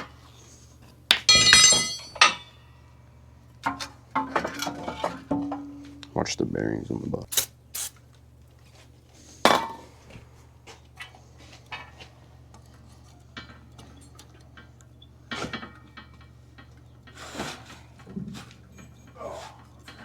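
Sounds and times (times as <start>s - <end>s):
sharp metal clank: 1.1s - 2.6s
metal tools clinking: 1.1s - 2.7s.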